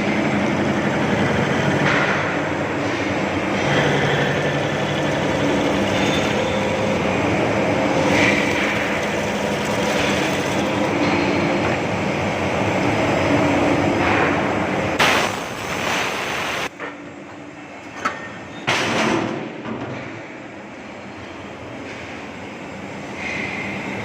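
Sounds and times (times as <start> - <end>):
metal chamfering machine grinding: 3.6 - 11.6.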